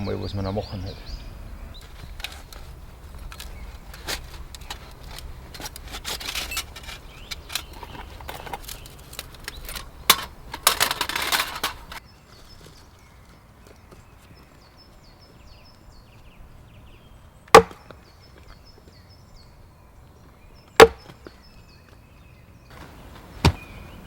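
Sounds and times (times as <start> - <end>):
objects rattling: 1.8 - 12.0
objects clicking and clinking: 1.9 - 12.0.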